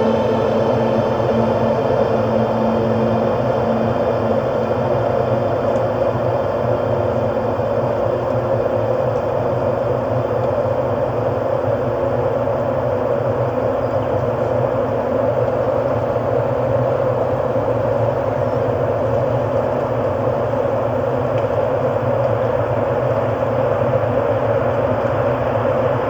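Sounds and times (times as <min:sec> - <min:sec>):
ambient rumbling drone: 0:00.0 - 0:08.9.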